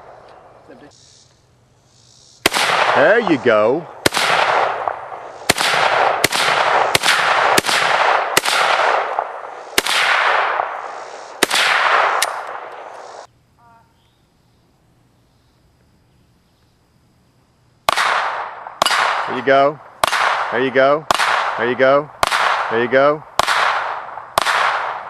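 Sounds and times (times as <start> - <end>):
rifle shots with echo: 2.4 - 13.3, 17.9 - 25.0.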